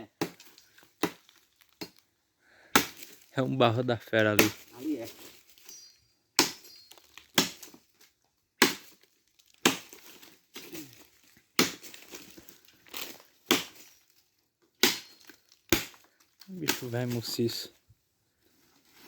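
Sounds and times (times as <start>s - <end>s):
axe chopping wood: 0.2s - 2.0s, 2.7s - 3.2s, 4.2s - 4.7s, 6.4s - 7.8s, 8.6s - 9.0s, 9.6s - 13.9s, 14.8s - 16.1s, 16.7s - 16.9s
wood splintering: 4.2s - 5.7s, 6.4s - 7.8s, 8.6s - 14.0s.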